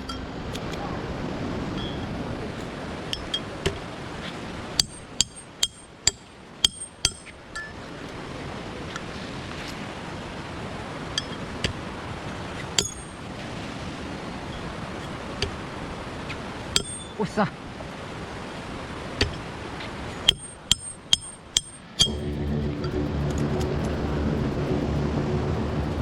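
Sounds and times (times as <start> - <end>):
steady background noise: 0.0 - 26.0
sharp metallic clinks: 2.6 - 3.6, 4.8 - 7.8, 11.2 - 11.5, 12.8 - 13.2, 16.8 - 17.2, 20.3 - 23.0.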